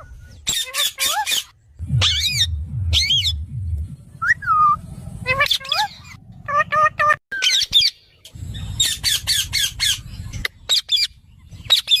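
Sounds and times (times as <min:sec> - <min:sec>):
parrot squawking: 0:00.5 - 0:03.4, 0:04.5 - 0:10.0.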